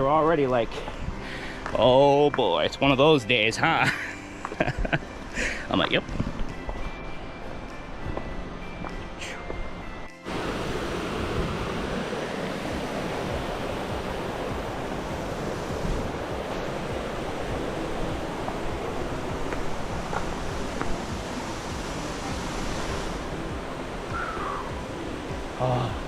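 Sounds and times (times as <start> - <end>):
waterfall rushing: 10.3 - 26.0.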